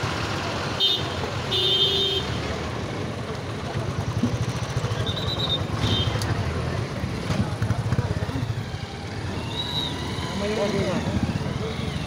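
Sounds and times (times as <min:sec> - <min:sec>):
vehicle engines rumbling: 0:00.0 - 0:12.0
car horn toot: 0:00.8 - 0:02.4.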